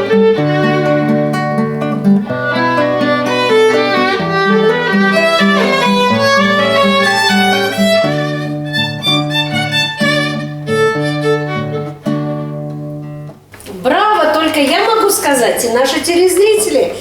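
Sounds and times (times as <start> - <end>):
violin melody: 0.0 - 13.0.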